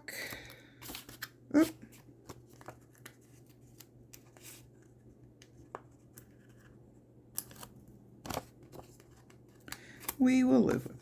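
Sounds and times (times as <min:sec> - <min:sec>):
paper rustling and tapping: 0:07.4 - 0:11.0.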